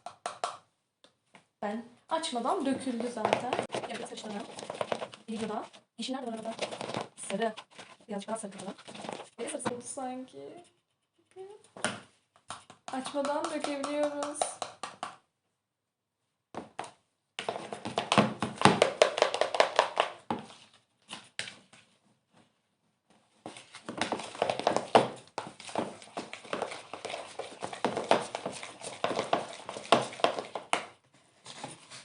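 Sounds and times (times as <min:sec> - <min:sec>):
slime squelching while stirred: 0:02.8 - 0:09.5, 0:23.3 - 0:32.0.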